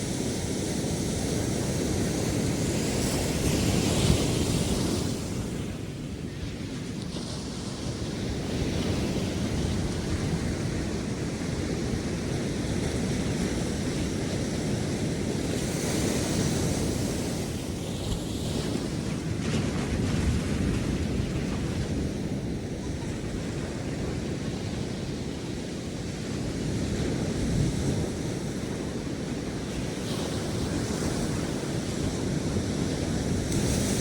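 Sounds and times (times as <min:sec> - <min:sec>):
ocean surf on sandy beach: 0:00.0 - 0:34.0
wind rumbling on microphone: 0:00.0 - 0:34.0.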